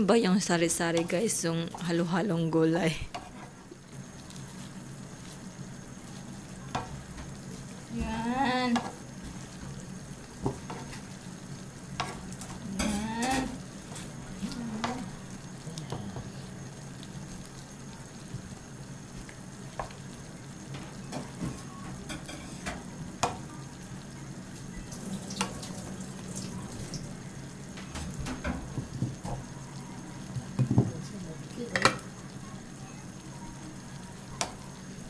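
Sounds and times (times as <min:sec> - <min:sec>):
hot pot sizzling: 0:00.0 - 0:35.0
utensils tapping pot: 0:31.7 - 0:32.0.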